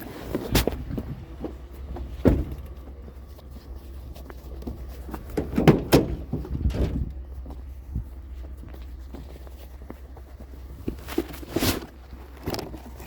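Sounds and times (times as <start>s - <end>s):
steady low rumble: 0.0s - 13.0s
sharp knocks and clunks: 2.1s - 2.8s, 5.2s - 7.2s.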